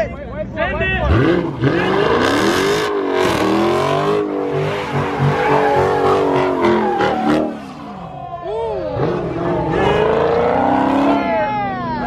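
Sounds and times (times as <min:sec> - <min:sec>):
car engine revving hard: 0:01.1 - 0:08.0, 0:09.0 - 0:11.4
tyres squealing: 0:04.1 - 0:08.3.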